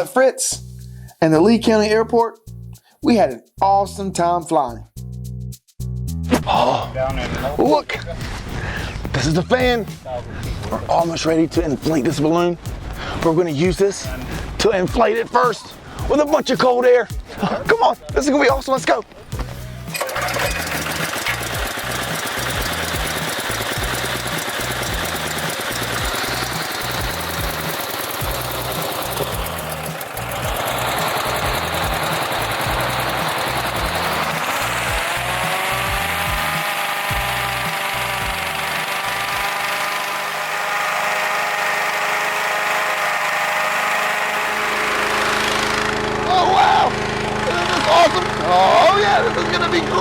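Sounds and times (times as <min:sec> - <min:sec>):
inflation fan engine drone: 0:19.6 - 0:50.0
deep low hum: 0:21.4 - 0:38.8.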